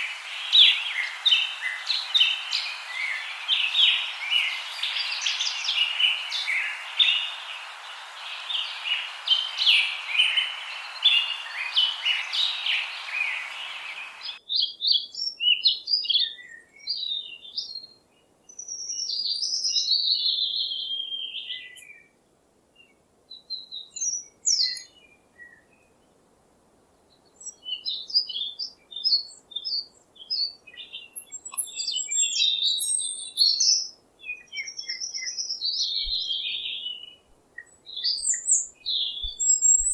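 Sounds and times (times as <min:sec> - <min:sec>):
birds warbling: 0:00.0 - 0:14.4
songbirds chirping: 0:00.0 - 0:14.4, 0:33.7 - 0:39.9
steady hiss: 0:00.0 - 0:14.4.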